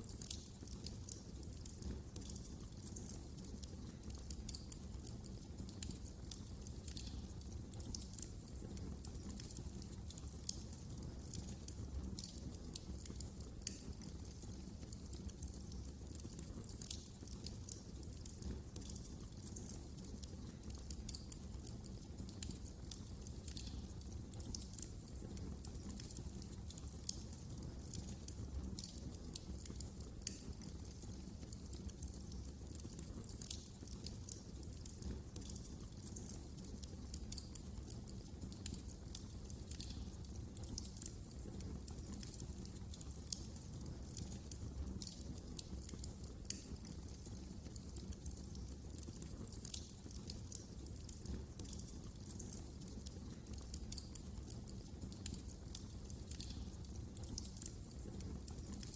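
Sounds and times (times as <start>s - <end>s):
wood fire crackling: 0.0s - 58.9s.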